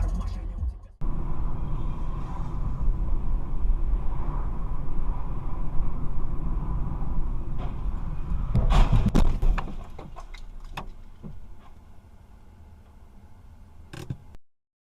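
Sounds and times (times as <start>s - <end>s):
car road rumble: 0.0s - 14.4s
knocks and clattering: 7.5s - 11.8s.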